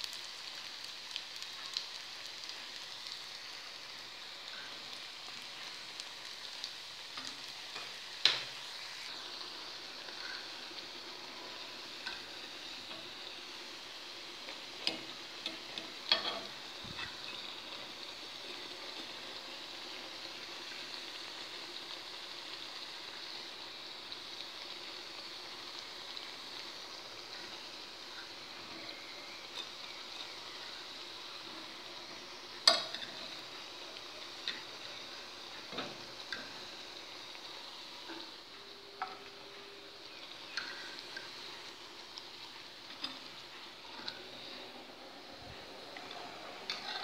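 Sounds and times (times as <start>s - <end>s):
dough deep-frying in oil: 0.0s - 47.0s
metal fork clicking on pan: 32.7s - 33.0s.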